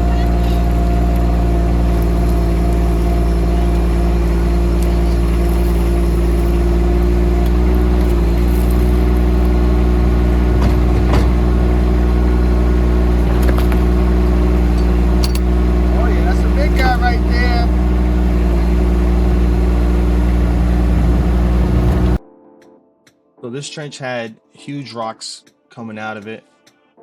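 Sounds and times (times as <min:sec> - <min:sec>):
excavator engine running: 0:00.0 - 0:22.2
brief knocks: 0:10.4 - 0:11.7.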